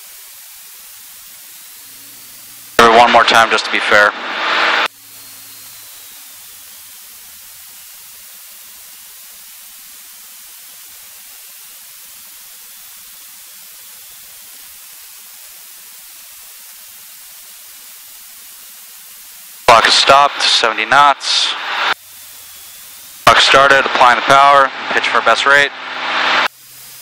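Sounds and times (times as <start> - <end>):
intercom electrical hiss: 0.0 - 27.0.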